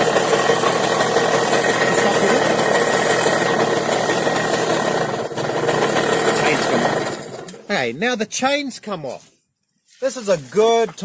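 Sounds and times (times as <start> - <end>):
motorbike engine idling: 0.0 - 7.7.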